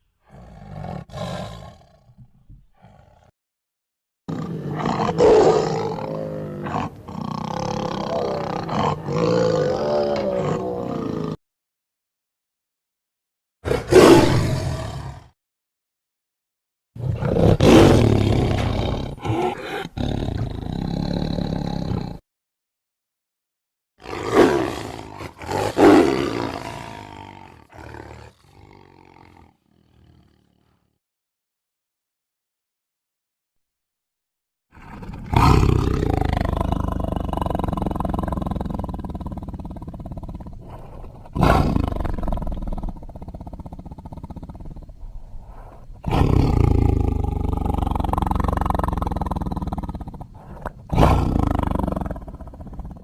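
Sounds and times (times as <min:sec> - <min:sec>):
tiger breathing: 0:00.2 - 0:03.3, 0:34.8 - 0:53.0
tiger roaring: 0:00.2 - 0:03.3, 0:04.3 - 0:11.4, 0:13.6 - 0:15.3, 0:17.0 - 0:22.2, 0:24.0 - 0:30.8, 0:34.7 - 0:53.0.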